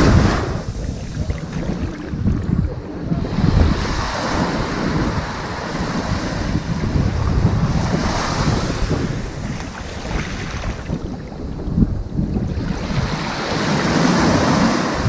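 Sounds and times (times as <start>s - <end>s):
ocean waves breaking on beach: 0.0s - 15.0s.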